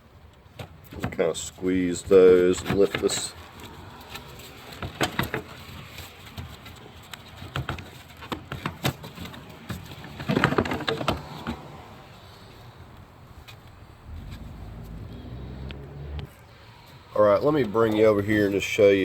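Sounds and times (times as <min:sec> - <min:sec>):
plastic parts clicking and knocking: 0:04.7 - 0:11.6.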